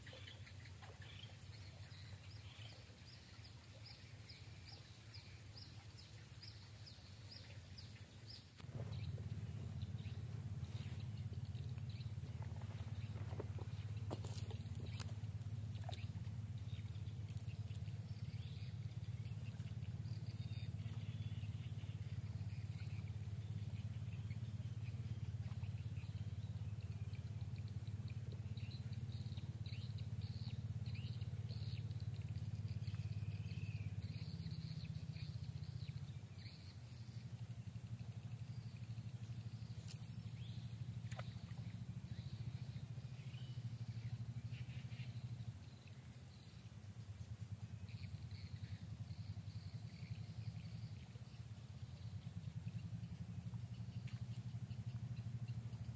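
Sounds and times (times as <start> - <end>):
birds chirping: 0.0 - 55.9
insect drone: 0.0 - 55.9
low rumble: 8.6 - 27.8.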